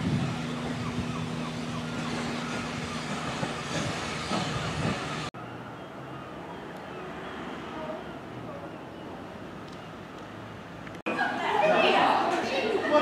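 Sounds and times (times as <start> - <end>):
passenger train rolling: 0.0 - 6.4.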